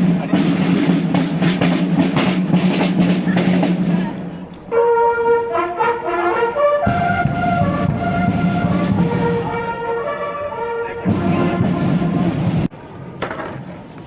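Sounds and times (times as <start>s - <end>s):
brass band playing: 4.7s - 12.7s.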